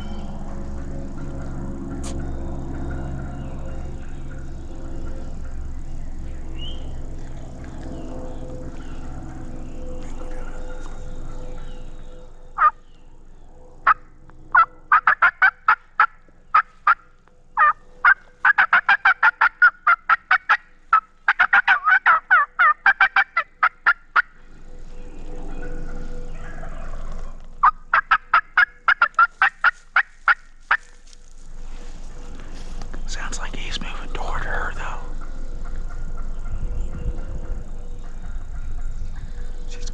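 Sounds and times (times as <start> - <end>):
turkey yelping and clucking: 12.6 - 12.8, 13.8 - 17.0, 17.6 - 24.3, 25.5 - 31.0.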